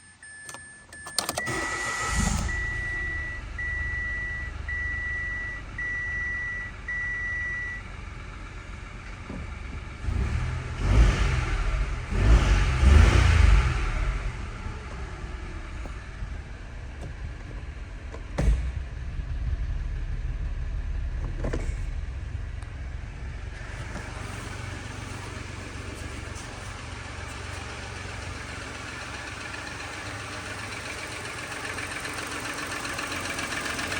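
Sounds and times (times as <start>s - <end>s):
dashboard warning chime beeps: 0.0s - 7.8s
car engine starting and idling: 0.1s - 33.9s
engine revving: 1.4s - 5.0s, 9.9s - 17.7s, 18.3s - 26.9s.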